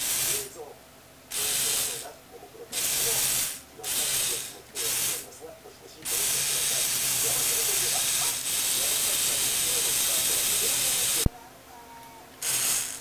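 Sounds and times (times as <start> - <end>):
small electric motors whirring: 1.3 - 2.1, 2.8 - 5.3, 6.0 - 11.3, 12.4 - 13.0.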